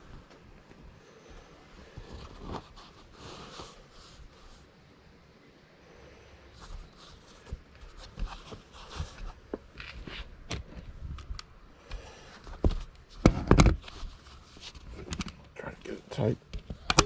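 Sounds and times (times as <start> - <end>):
carpet rustling and scraping: 0.0 - 4.8, 6.5 - 17.0.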